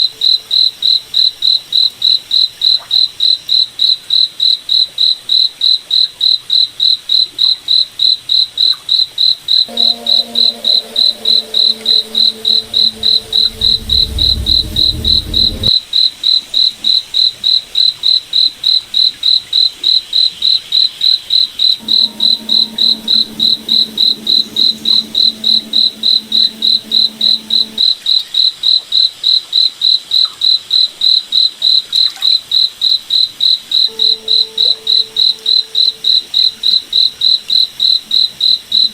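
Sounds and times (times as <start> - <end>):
low steady hum: 9.7 - 15.7, 21.8 - 27.9
deep rumble: 10.8 - 15.7, 21.8 - 27.8.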